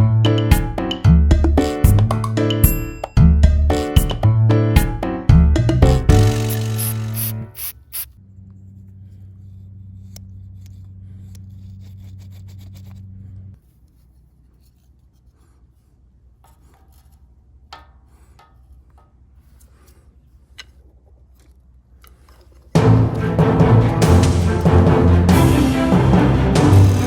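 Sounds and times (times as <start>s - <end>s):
rubbing and scraping strokes: 6.1s - 22.8s.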